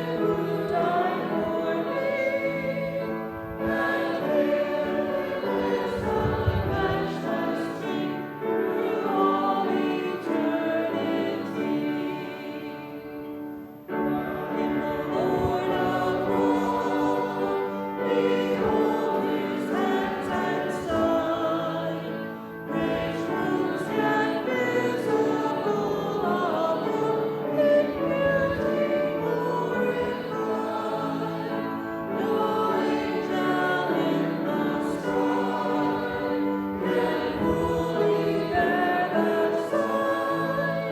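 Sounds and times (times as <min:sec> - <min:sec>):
congregation singing a hymn: 0:00.0 - 0:40.9.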